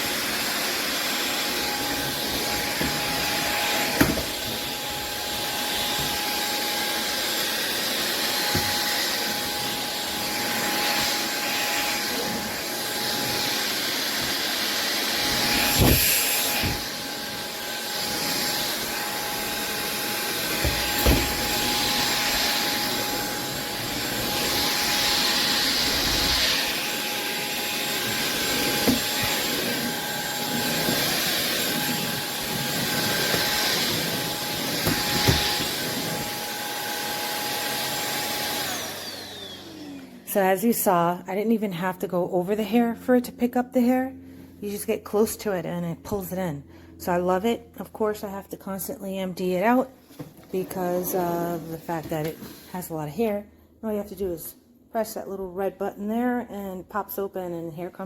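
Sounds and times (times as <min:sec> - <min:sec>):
stick vacuum running: 0:00.0 - 0:40.2
vacuum head knocks on wood floor: 0:04.0 - 0:04.4, 0:20.6 - 0:21.4.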